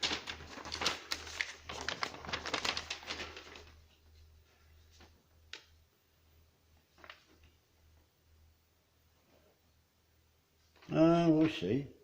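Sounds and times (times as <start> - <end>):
paper rustling and crackling: 0.0 - 5.7, 6.8 - 7.6.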